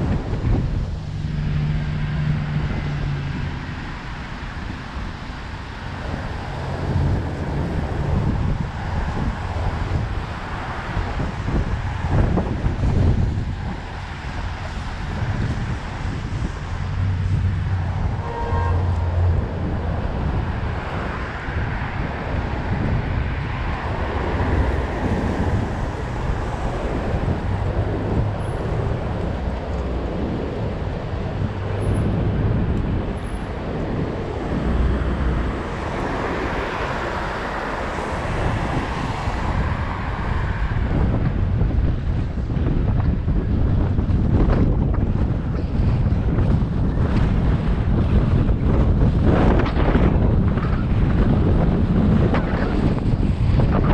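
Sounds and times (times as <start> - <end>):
wind buffeting microphone: 0.0 - 53.9
short pitched tone: 18.2 - 19.0.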